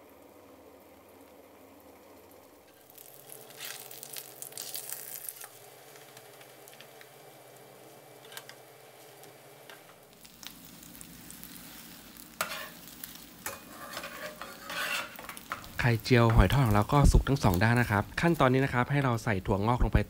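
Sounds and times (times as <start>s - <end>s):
batter sizzling in oil: 0.0s - 20.0s
spatula scraping pan: 11.4s - 16.8s.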